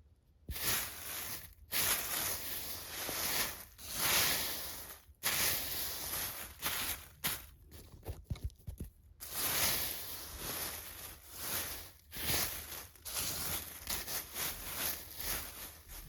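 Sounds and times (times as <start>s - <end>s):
vacuum cleaner sucking debris: 0.5s - 7.0s, 9.2s - 16.0s.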